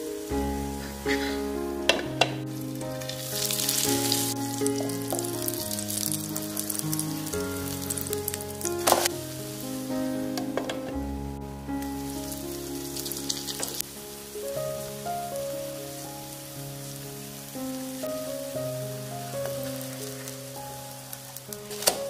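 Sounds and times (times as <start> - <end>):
background music: 0.0 - 22.0
pancake sizzling in oil: 3.0 - 9.8, 12.0 - 14.4.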